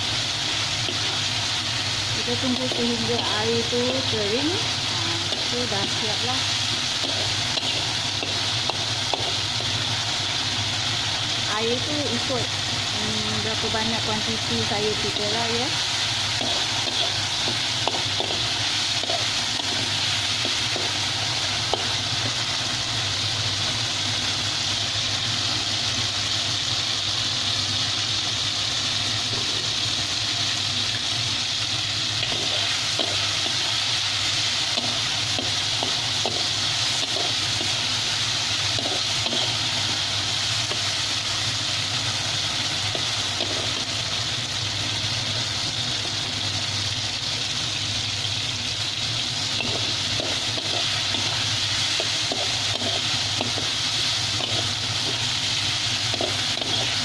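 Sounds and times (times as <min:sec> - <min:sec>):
beans sizzling in wok: 0:00.0 - 0:57.0.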